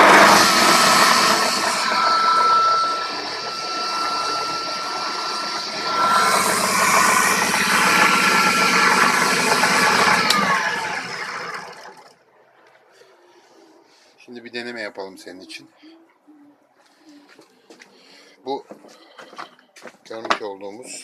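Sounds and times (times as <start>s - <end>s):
table saw whining: 0.0s - 12.1s.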